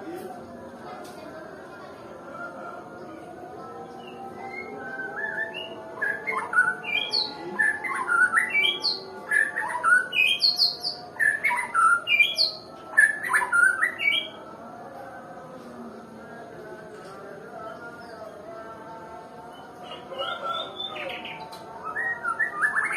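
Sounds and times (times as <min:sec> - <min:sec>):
bird singing whistled notes: 0:04.0 - 0:14.4, 0:19.8 - 0:22.9.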